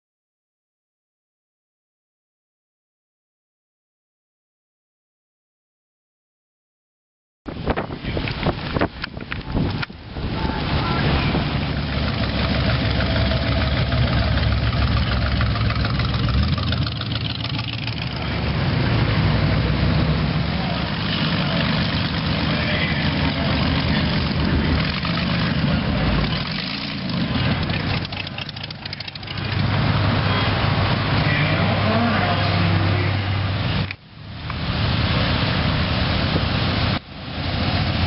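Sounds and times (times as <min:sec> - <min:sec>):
vehicle engine idling: 0:10.4 - 0:30.9.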